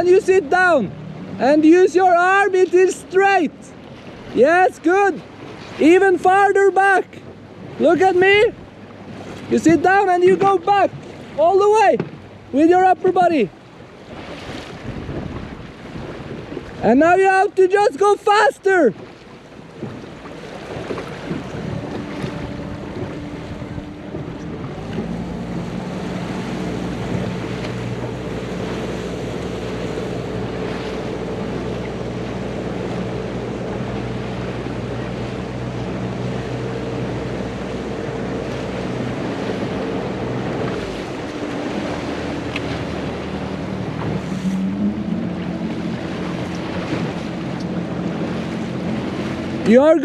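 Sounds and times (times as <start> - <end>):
wind buffeting microphone: 0.0 - 17.8, 18.7 - 50.0
outboard engine running: 0.0 - 50.0
water rushing: 0.0 - 50.0.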